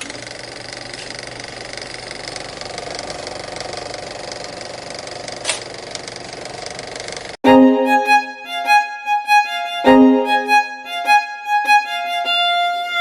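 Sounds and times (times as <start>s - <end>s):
mechanical buzzing rattle: 0.0s - 7.4s
violin music: 7.4s - 13.0s.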